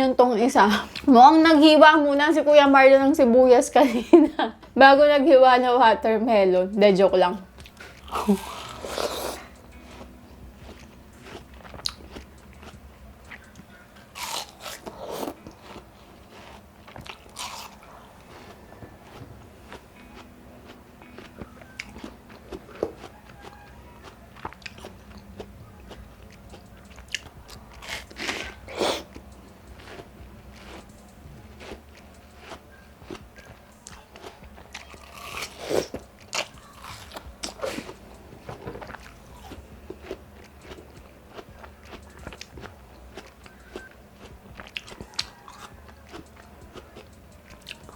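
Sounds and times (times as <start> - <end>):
crunching watermelon bites: 7.6 - 10.1, 10.7 - 20.3, 21.1 - 30.9, 31.5 - 47.9.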